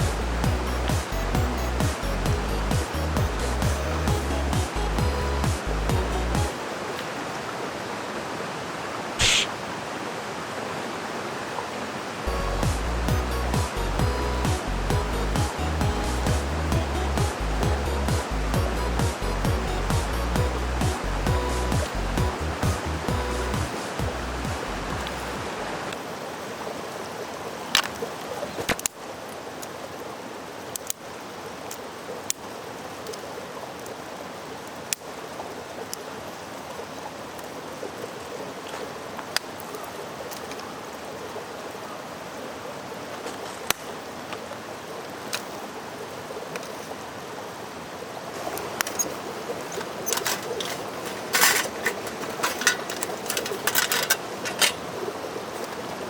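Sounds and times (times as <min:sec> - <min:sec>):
stream flowing: 0:00.0 - 0:56.0
sharp clicks and knocks: 0:48.6 - 0:54.8.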